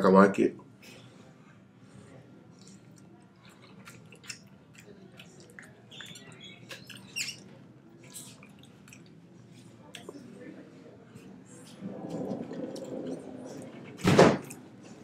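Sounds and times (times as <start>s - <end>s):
faint chewing and mouth clicks: 2.5s - 10.3s.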